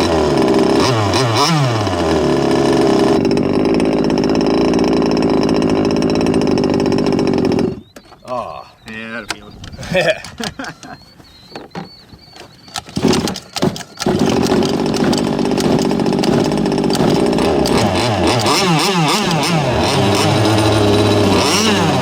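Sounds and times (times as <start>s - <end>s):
small two-stroke engine running: 0.0s - 8.1s, 12.9s - 22.0s.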